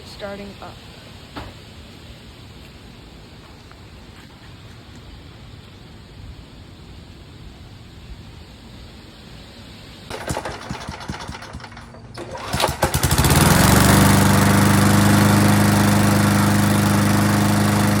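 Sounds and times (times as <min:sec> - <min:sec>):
lawn mower engine cranking: 0:10.1 - 0:18.0
lawn mower engine running: 0:10.1 - 0:18.0.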